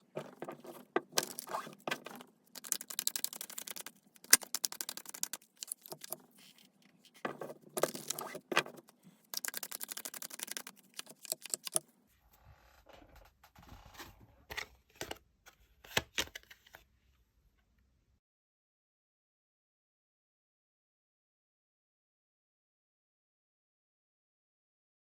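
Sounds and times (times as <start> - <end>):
cards being shuffled: 0.0 - 11.8.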